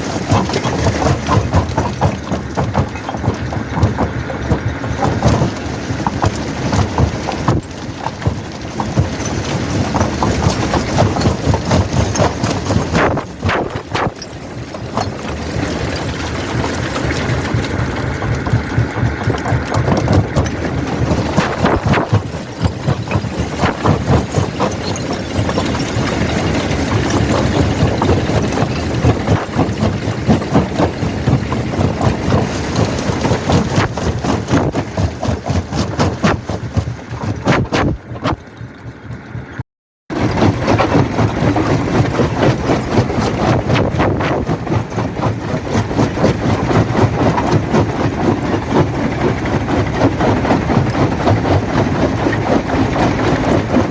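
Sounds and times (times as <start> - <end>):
rock knocking and cracking: 0.0 - 38.4
heavy machinery drone: 0.0 - 53.9.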